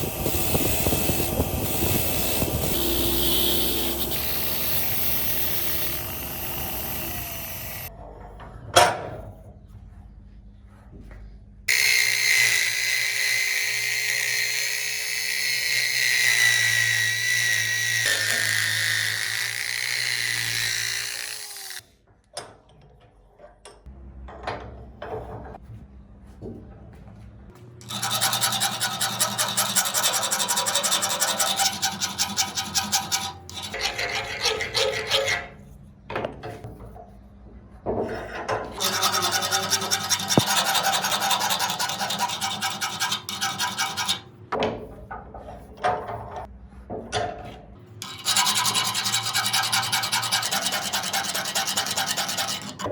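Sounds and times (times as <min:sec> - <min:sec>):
abrasive rasping strokes: 0:00.0 - 0:07.9, 0:27.8 - 0:35.6, 0:38.8 - 0:44.2
power tool whining: 0:00.0 - 0:07.9, 0:27.8 - 0:33.8.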